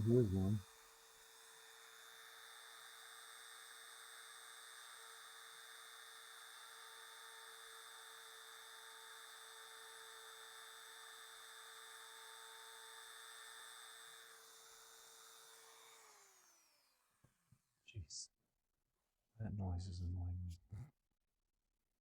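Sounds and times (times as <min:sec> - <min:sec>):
rotary tool high whine: 0:00.0 - 0:17.2.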